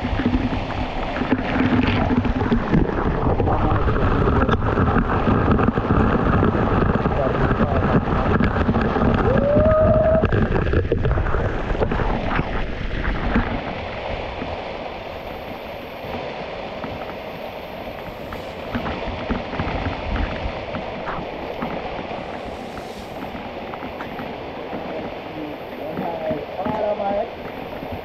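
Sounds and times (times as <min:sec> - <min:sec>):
wind buffeting microphone: 0:00.0 - 0:28.0
waterfall rushing: 0:08.7 - 0:28.0.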